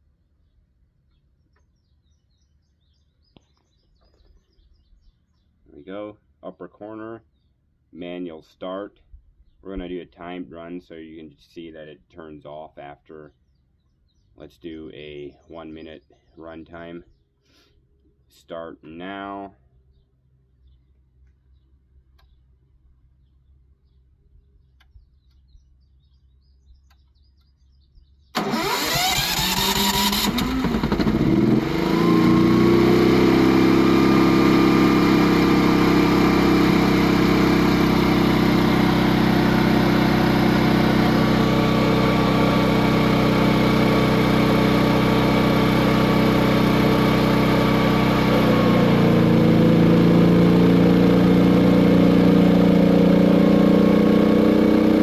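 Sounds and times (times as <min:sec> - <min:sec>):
electric starter cranking: 0:28.4 - 0:32.8
generator engine running: 0:28.4 - 0:55.0.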